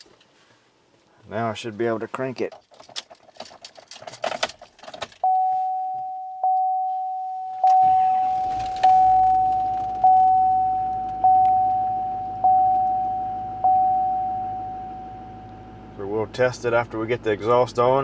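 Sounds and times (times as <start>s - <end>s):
truck warning chime dinging: 5.2s - 16.0s
diesel engine cranking and idling: 7.6s - 18.0s.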